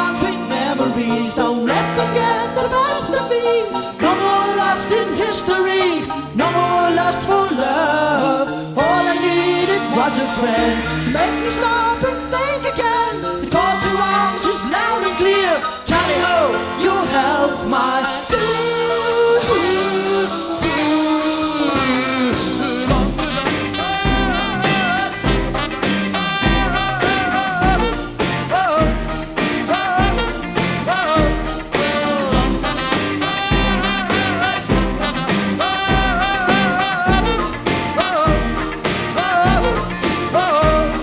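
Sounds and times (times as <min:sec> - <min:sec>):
bass drum beat: 0:15.9 - 0:41.0.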